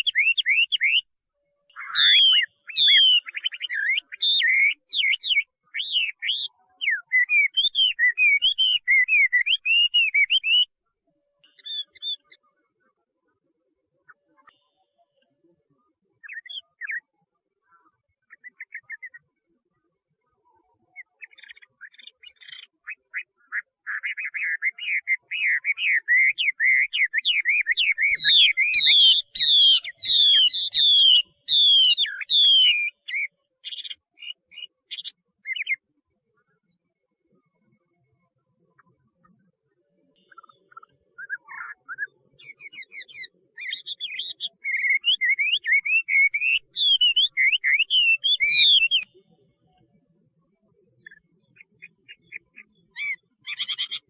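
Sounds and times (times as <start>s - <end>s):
bird whistling song: 0.0s - 1.1s, 1.7s - 10.8s, 11.4s - 12.5s, 16.2s - 17.1s, 18.3s - 19.2s, 20.9s - 35.8s, 40.2s - 49.3s, 51.0s - 54.0s.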